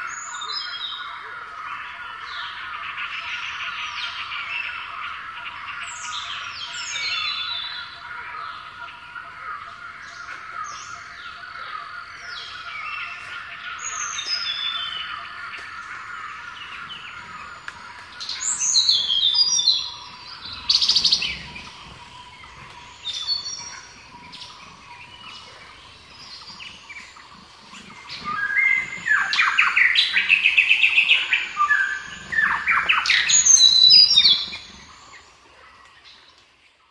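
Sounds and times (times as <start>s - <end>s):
songbirds chirping and singing: 0.0s - 36.9s.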